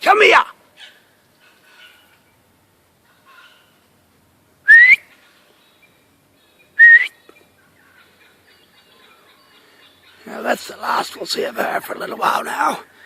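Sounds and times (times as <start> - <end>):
person whistling rising pitch: 4.7 - 5.0, 6.8 - 7.1.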